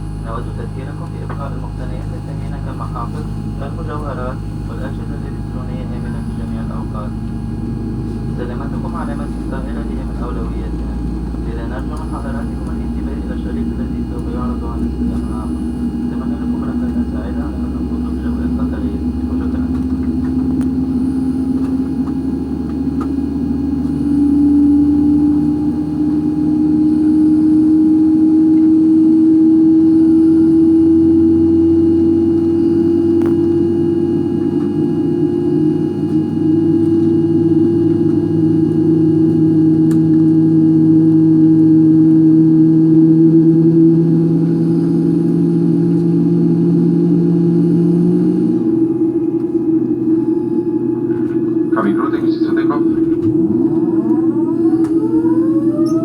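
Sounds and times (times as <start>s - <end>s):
jet engines tonal hum: 0.0s - 56.0s
low rumble: 38.6s - 56.0s.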